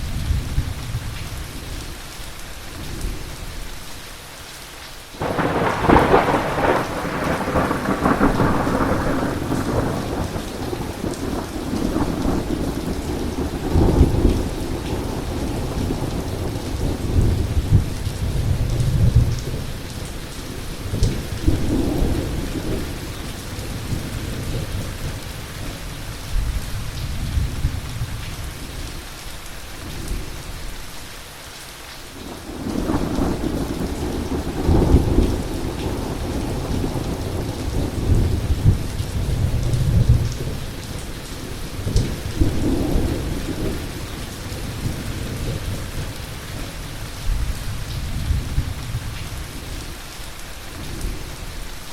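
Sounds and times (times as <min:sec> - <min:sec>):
heavy rain: 0:00.0 - 0:51.9
rolling thunder: 0:05.2 - 0:20.0, 0:32.3 - 0:49.2.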